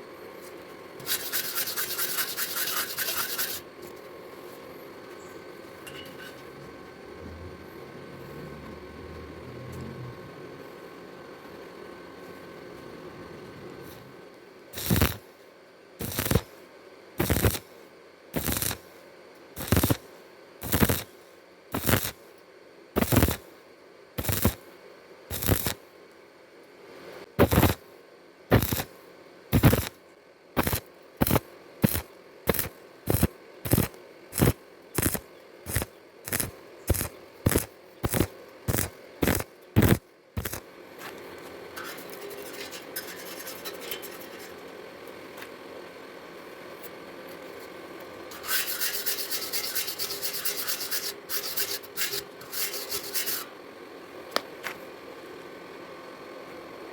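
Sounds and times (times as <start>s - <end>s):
steady hiss: 16.0s - 16.6s, 19.6s - 22.2s, 30.6s - 44.4s.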